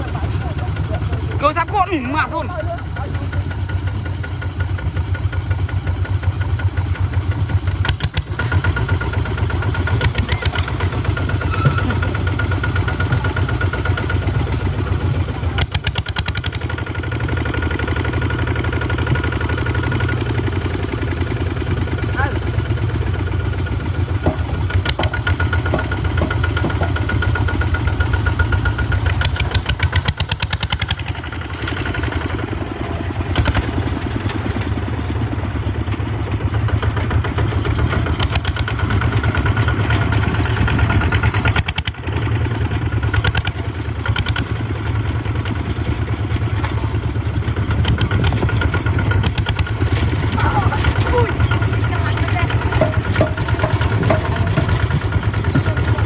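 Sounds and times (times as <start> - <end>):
tractor engine chugging: 0.0 - 56.0
rattling clatter: 7.9 - 14.3, 23.0 - 56.0.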